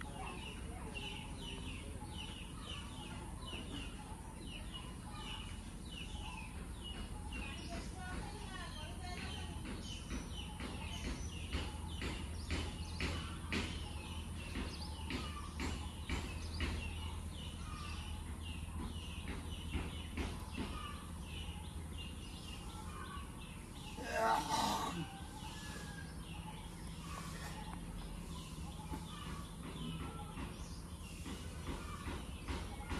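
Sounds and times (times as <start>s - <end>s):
birds chirping: 0.0s - 32.9s.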